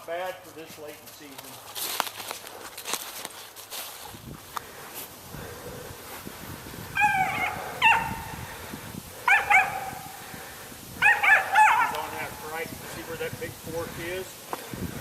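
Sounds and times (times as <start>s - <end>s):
dog yipping barks: 7.0s - 8.3s, 9.3s - 10.1s, 11.0s - 12.0s.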